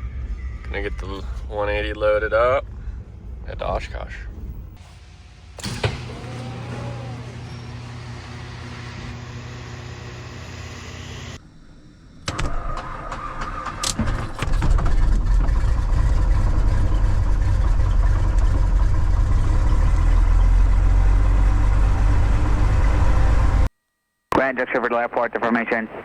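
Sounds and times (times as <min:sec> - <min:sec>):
piston engine running: 0:04.6 - 0:11.4
engine starter cranking: 0:05.6 - 0:11.4.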